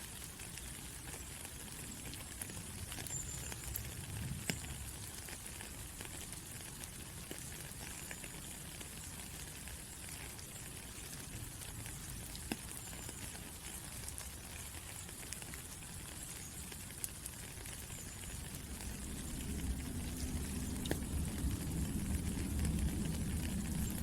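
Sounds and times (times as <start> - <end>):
steady rainfall: 0.0 - 24.0
low rumble: 18.4 - 24.0.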